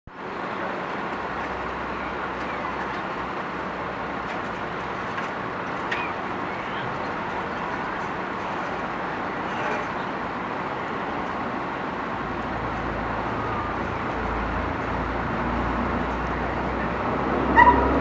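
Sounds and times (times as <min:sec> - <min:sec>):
traffic: 0:00.1 - 0:18.0.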